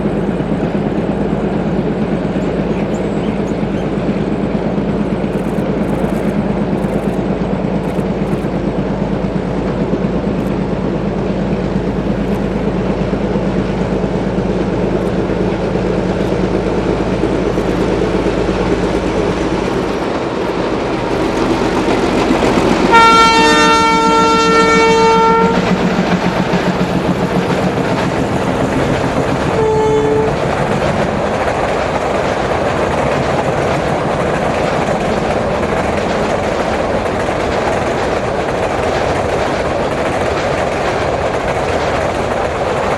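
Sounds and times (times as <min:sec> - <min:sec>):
locomotive engine drone: 0:00.0 - 0:42.9
train wheels clacking on rails: 0:00.0 - 0:42.9
train horn blasts: 0:22.9 - 0:25.7, 0:29.5 - 0:30.4.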